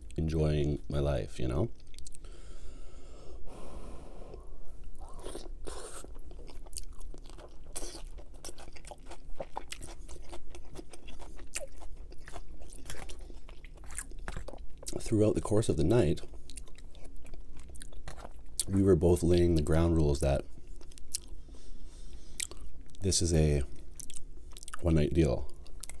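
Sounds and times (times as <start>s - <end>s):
wet chewing mouth sounds: 1.8s - 2.2s, 4.8s - 15.1s, 16.2s - 18.7s, 20.6s - 21.4s, 22.1s - 23.0s.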